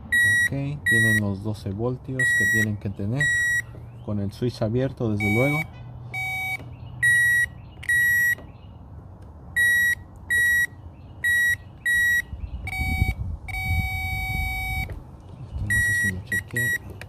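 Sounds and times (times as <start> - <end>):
circuit tester beeping: 0.1 - 1.3, 2.2 - 3.7, 5.2 - 8.5, 9.6 - 15.0, 15.7 - 17.0.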